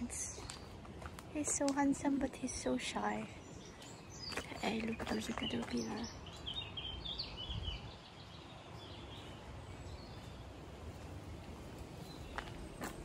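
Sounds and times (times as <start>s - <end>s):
faint low outdoor rumble: 0.0s - 13.0s
small bird chirping: 2.6s - 10.4s.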